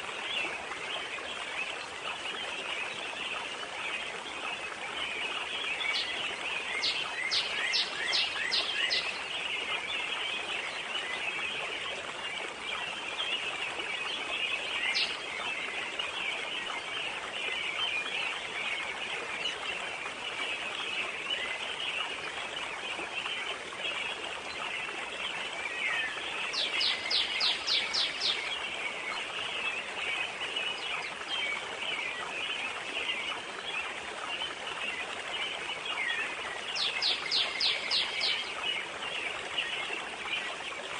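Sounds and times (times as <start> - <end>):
water: 0.0 - 40.9
wind: 0.0 - 40.9
songbird singing: 0.3 - 19.7, 20.5 - 33.8, 34.4 - 40.5.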